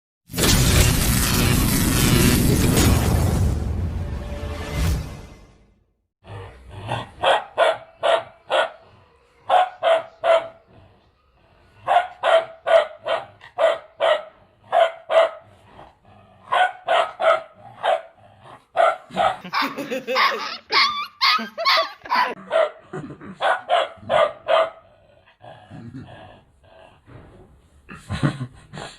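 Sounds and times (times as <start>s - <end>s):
puppy barking high-pitched: 7.2s - 8.8s, 9.5s - 10.6s, 11.8s - 15.4s, 16.5s - 18.2s, 18.8s - 22.8s, 23.4s - 24.8s.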